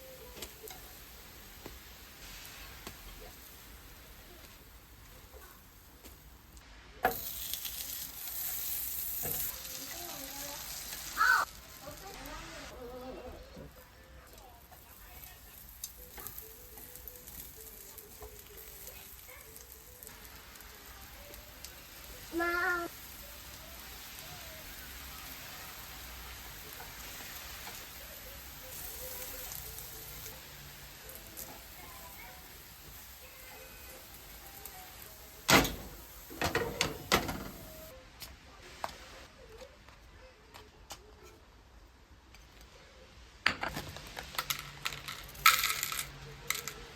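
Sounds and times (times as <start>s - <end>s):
rain pattering: 17.6s - 32.2s.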